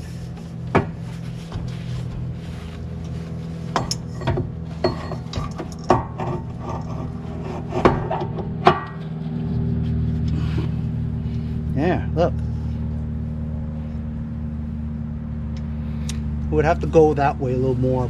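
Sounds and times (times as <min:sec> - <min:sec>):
steady low hum: 0:00.0 - 0:18.0
sharp metal knocks and clinks: 0:03.8 - 0:06.2
metal parts rubbing: 0:03.8 - 0:09.1.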